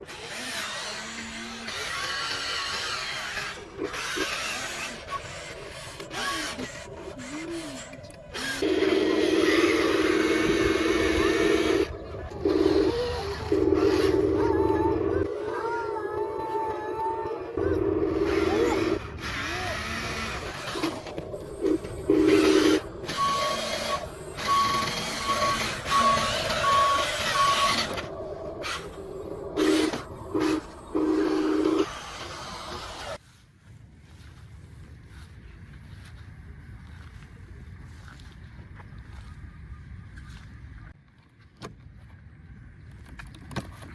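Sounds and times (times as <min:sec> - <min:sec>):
toy truck reversing alarm beeping: 0:06.1 - 0:15.3, 0:18.2 - 0:33.2.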